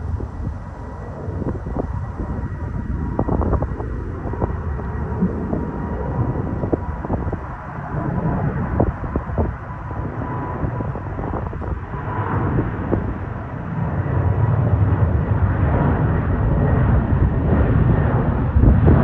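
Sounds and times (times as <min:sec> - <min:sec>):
faint steady whine: 0:00.0 - 0:12.1
jet engines rumbling: 0:00.0 - 0:19.0
wind buffeting microphone: 0:00.0 - 0:19.0.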